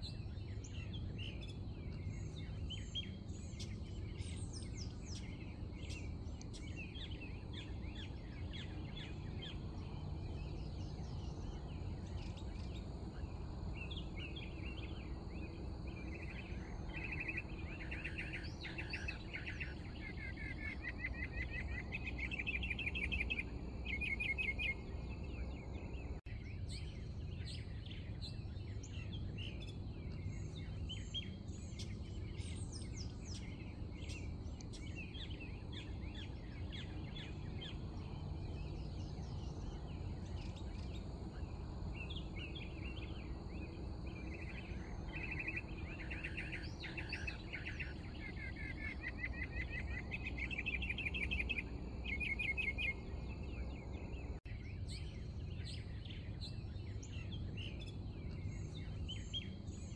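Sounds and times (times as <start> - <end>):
low outdoor rumble: 0.0 - 59.9
songbirds chirping and singing: 0.0 - 59.9
loud rapid bird trill: 13.8 - 25.2, 35.0 - 54.4.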